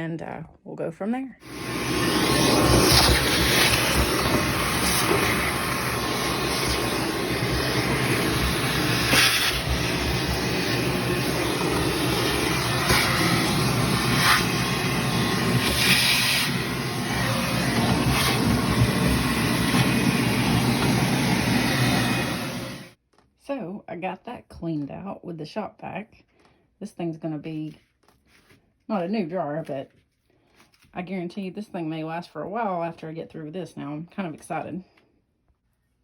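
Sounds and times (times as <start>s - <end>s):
shop vac running: 1.4s - 23.0s
vacuum hiss sucking clumps: 1.4s - 23.0s.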